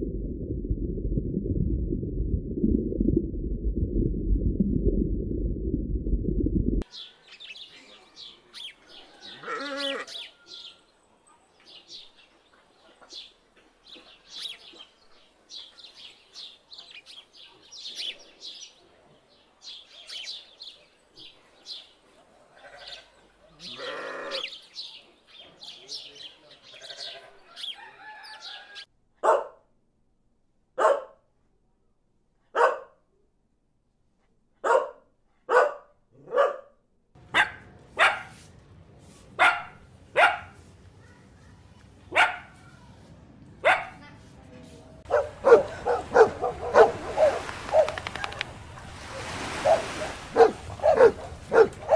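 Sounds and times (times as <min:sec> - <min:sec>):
puppy barking: 0:29.2 - 0:29.6, 0:30.8 - 0:31.2, 0:32.5 - 0:33.0, 0:34.6 - 0:38.4, 0:39.4 - 0:40.6, 0:42.1 - 0:42.6, 0:43.6 - 0:44.0, 0:45.0 - 0:48.4, 0:49.6 - 0:51.9.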